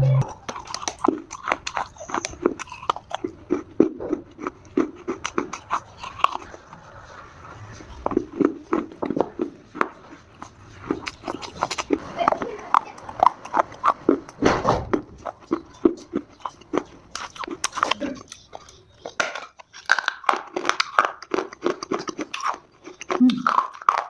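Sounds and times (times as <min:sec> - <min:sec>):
clay being chewed crunching: 0:00.2 - 0:24.0.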